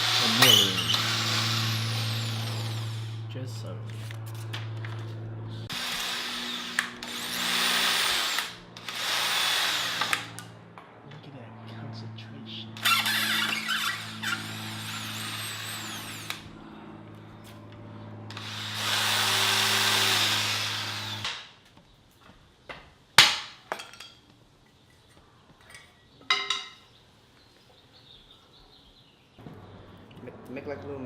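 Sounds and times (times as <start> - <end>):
power drill drilling into wood: 0.0 - 3.2, 5.7 - 10.5, 12.8 - 16.4, 18.3 - 21.5.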